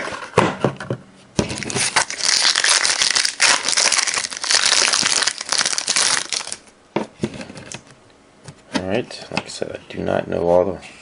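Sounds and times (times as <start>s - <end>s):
card pack wrapper crinkling: 1.4s - 6.7s.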